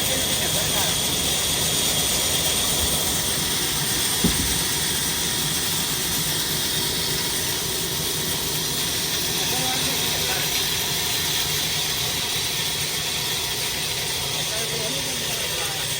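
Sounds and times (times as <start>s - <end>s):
diesel engine running: 0.0s - 15.9s
sharp knock: 4.2s - 4.9s.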